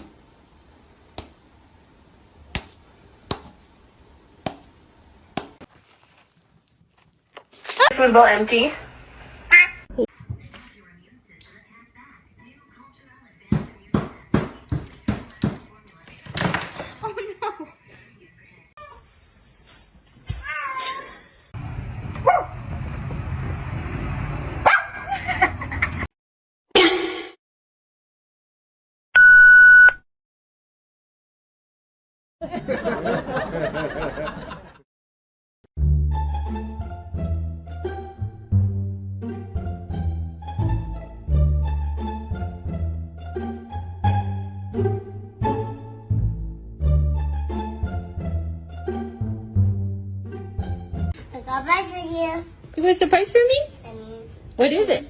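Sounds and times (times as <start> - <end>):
dog barking and yipping: 24.6 - 25.0.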